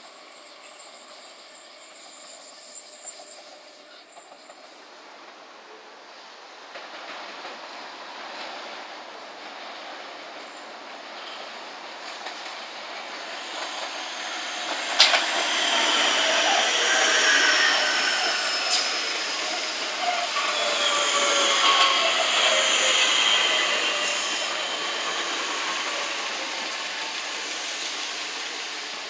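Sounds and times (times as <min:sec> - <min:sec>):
train wheels rumbling on rail: 0:00.2 - 0:29.0
wheels squealing: 0:10.5 - 0:28.8.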